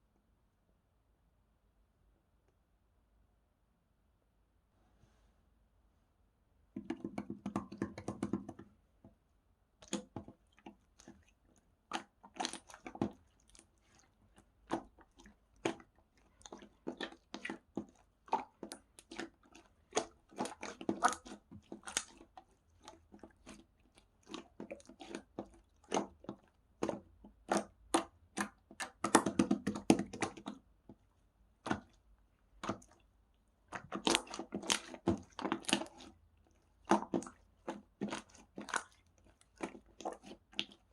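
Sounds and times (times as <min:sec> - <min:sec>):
slime squished by hand: 0:09.8 - 0:40.9.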